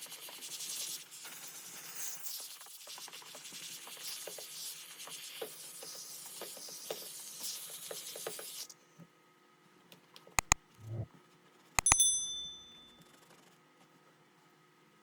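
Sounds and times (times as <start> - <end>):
light clicks: 10.4 - 11.0.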